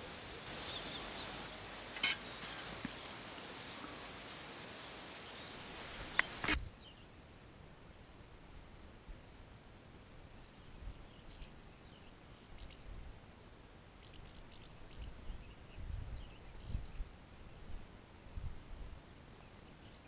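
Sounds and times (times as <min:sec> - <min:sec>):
faint bird chirps: 0:00.0 - 0:07.1
wind rumble on microphone: 0:14.3 - 0:20.0.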